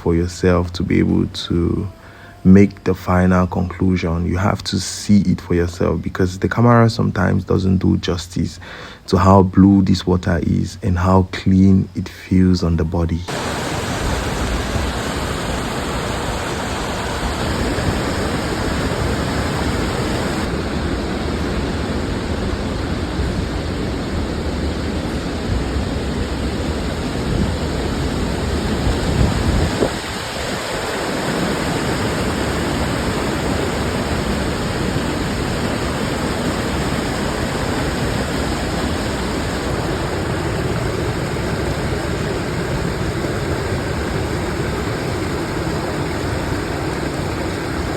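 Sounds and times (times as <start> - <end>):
waterfall roaring: 13.3 - 47.9.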